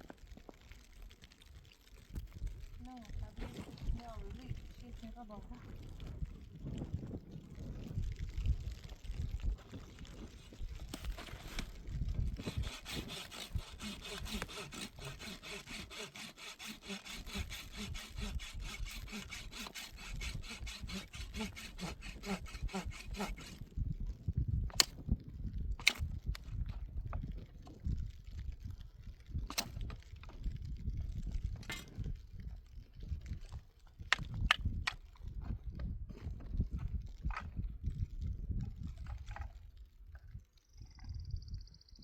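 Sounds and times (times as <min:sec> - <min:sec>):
hand saw cutting wood: 0:10.1 - 0:23.6.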